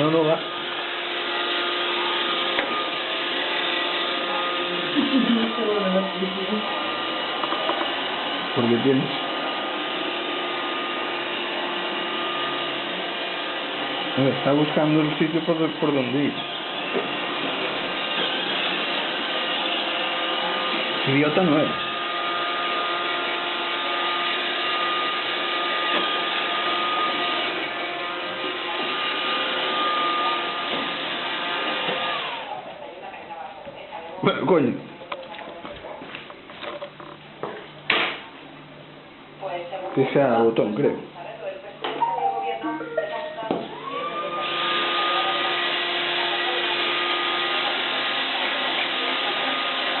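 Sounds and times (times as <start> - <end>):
robot vacuum motor whine: 0.0 - 32.6, 43.7 - 50.0.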